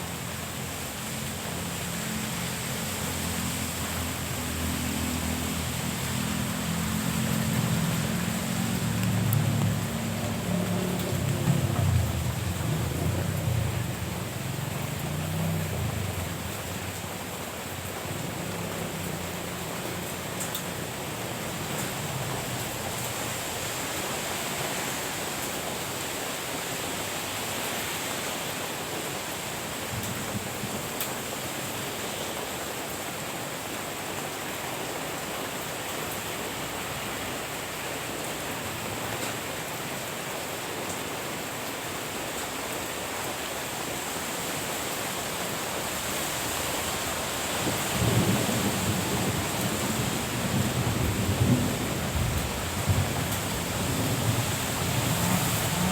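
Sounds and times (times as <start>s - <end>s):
steady rain falling: 0.0s - 55.9s
thunder rumbling: 6.4s - 16.8s, 47.6s - 55.9s.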